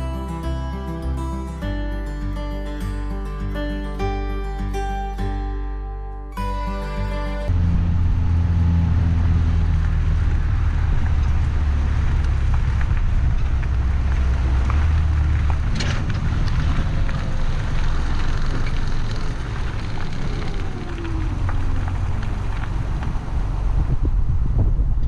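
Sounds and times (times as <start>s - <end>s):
tractor engine rumbling: 6.4s - 25.0s.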